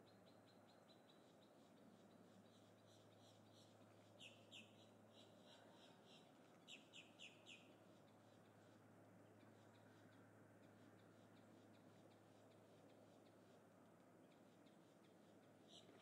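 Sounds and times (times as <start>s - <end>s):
faint bird chirps: 0.0s - 8.4s, 14.3s - 16.0s.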